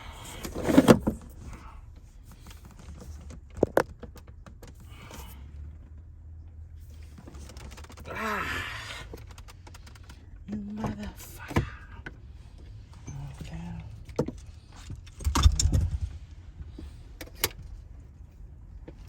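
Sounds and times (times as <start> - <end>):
man groaning: 8.1 - 9.0.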